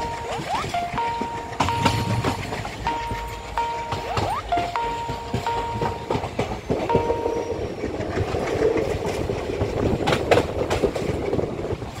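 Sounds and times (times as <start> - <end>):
short high tone: 0.0 - 7.8
clacks over rail joints: 0.0 - 12.0
train wheels rumbling on rails: 0.0 - 12.0.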